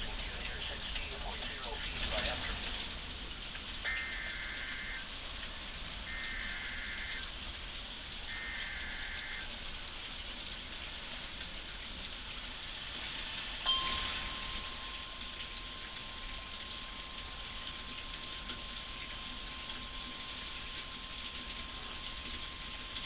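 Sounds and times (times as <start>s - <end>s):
heavy rain falling: 0.0s - 23.0s
steady single tone: 13.6s - 23.0s.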